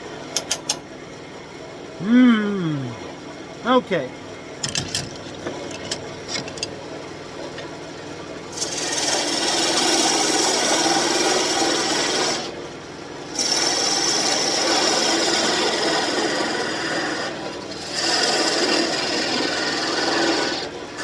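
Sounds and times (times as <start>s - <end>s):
lathe tool cutting wood: 8.5s - 12.6s, 13.3s - 20.7s.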